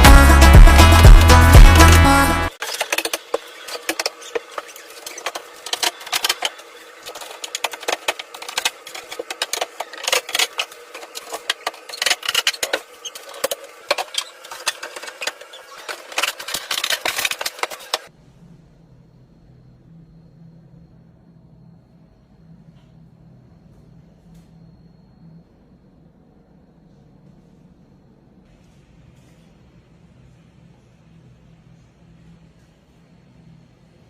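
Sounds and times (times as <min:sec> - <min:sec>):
small hard parts clicking and rattling: 0:02.6 - 0:18.1
faint low hum: 0:18.1 - 0:34.0.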